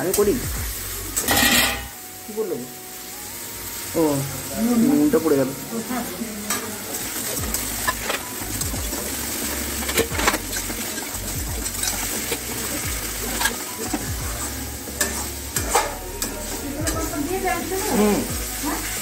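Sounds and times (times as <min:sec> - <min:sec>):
paste sizzling in a pan: 0:00.0 - 0:19.0
metal spatula scraping a pan: 0:01.2 - 0:02.0, 0:06.4 - 0:19.0.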